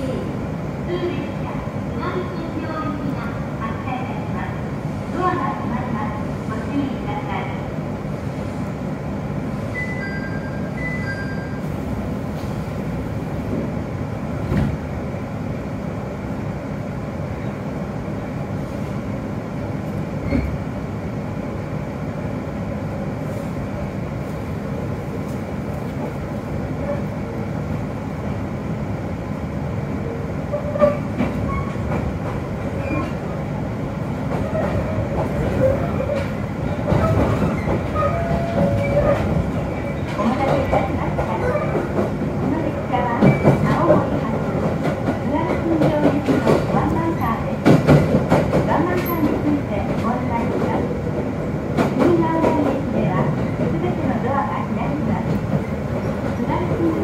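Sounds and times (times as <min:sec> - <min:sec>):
train running rumble and hum: 0:00.0 - 0:57.0
train wheel clacks: 0:34.3 - 0:42.5, 0:43.2 - 0:47.0, 0:47.6 - 0:50.7.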